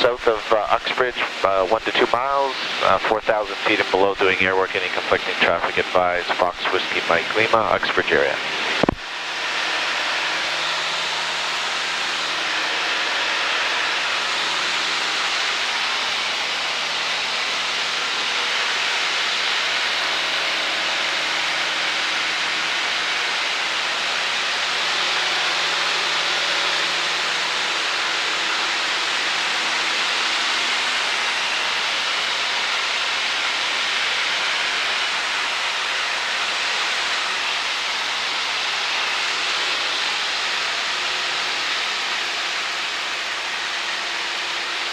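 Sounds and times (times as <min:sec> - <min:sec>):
faint engine hum: 0:00.0 - 0:08.9.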